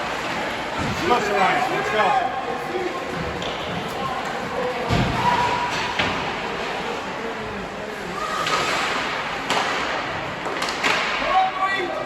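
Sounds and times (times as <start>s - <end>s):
hollow arena murmur: 0.0s - 12.0s
hockey sticks and puck on ice: 8.2s - 11.4s.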